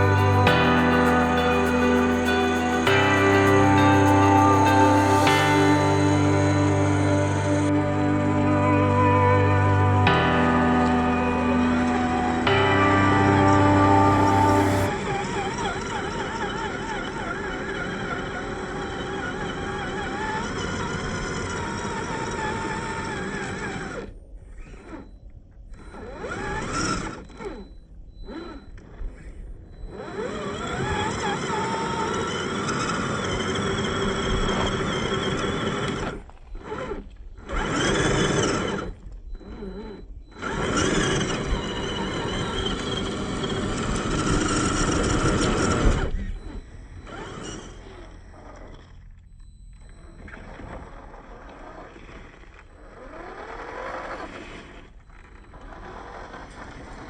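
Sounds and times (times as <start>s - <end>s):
electric motor and gears whining: 25.8s - 57.0s.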